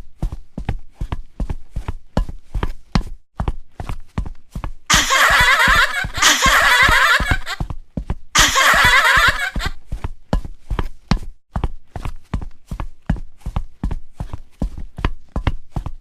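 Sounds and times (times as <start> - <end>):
people laughing: 4.9 - 7.6, 8.4 - 9.7.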